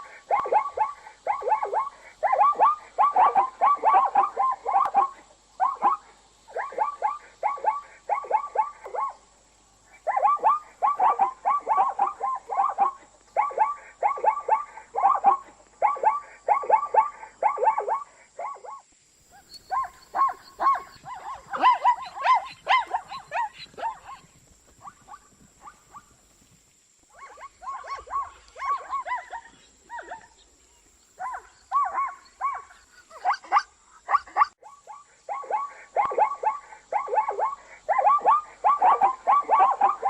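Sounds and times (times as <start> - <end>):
zebra yelping calls: 0.3 - 9.2, 10.0 - 15.4, 19.3 - 26.1, 27.2 - 30.4.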